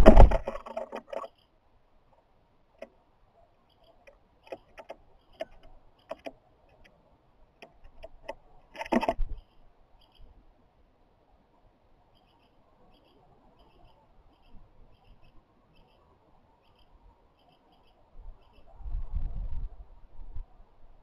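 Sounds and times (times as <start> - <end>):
knocks and thumps: 0.0 - 1.3, 8.8 - 9.3
bird pecking and scrabbling: 0.0 - 1.5, 3.7 - 7.0, 7.6 - 10.2.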